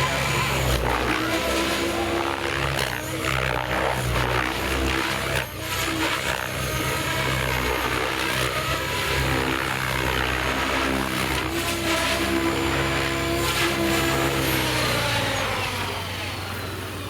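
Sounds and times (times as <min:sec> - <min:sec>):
model aircraft engine: 0:00.0 - 0:17.0.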